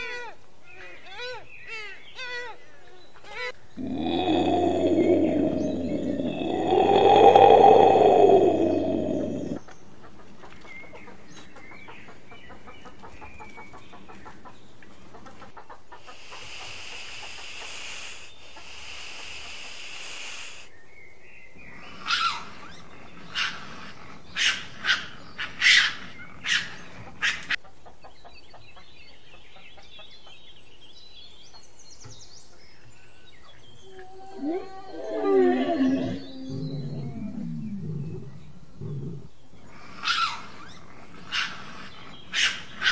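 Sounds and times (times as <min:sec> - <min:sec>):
faint chirps: 0:00.7 - 0:09.8, 0:16.1 - 0:20.8.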